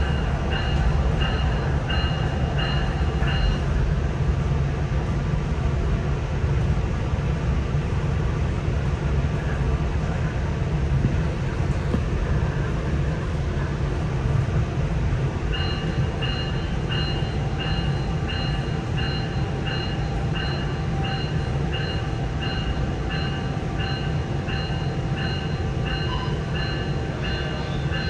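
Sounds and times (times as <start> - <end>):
train warning bell ringing: 0.0 - 3.8, 15.5 - 28.0
diesel train rumble: 0.0 - 28.0.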